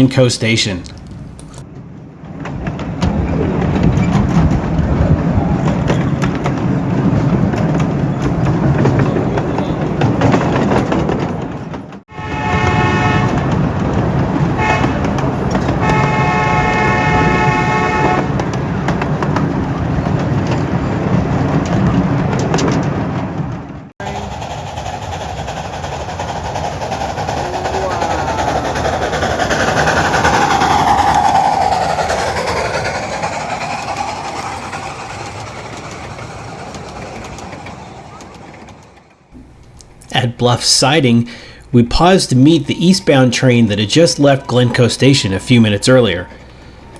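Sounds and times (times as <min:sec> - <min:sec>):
train rumbling on track: 0:00.0 - 0:46.9
steam whistle blasts: 0:12.1 - 0:13.5, 0:14.6 - 0:15.1, 0:15.8 - 0:18.4.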